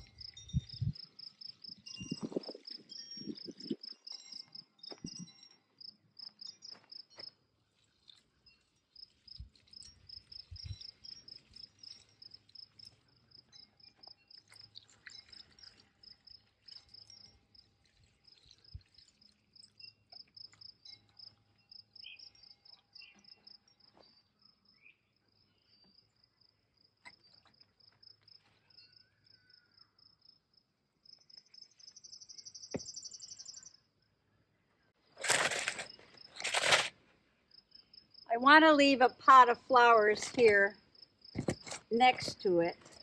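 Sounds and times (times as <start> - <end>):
crickets chirping: 0.0 - 7.4, 8.0 - 34.0.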